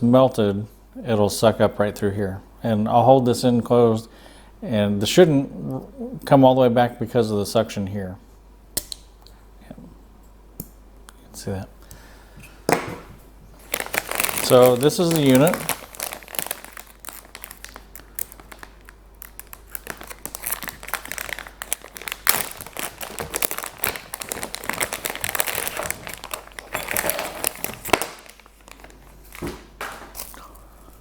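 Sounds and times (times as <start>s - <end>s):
packaging crinkling and rustling: 13.5s - 31.0s.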